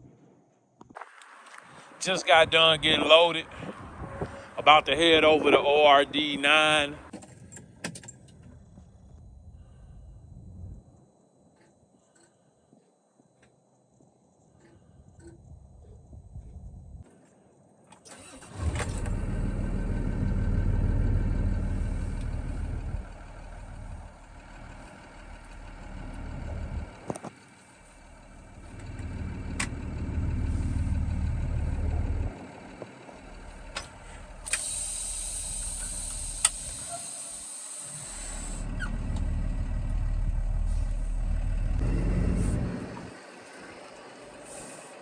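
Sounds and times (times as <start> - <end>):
truck engine starting: 1.1 - 10.8, 18.0 - 45.0
truck pulling away: 18.1 - 45.0
steady hiss: 34.3 - 38.6.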